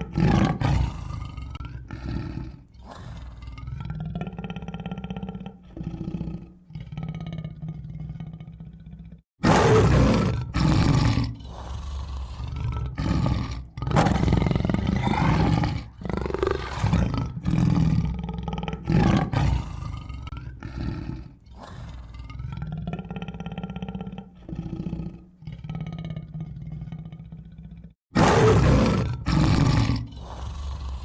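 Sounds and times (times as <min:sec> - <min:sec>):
tiger roaring and growling: 0:00.0 - 0:31.0.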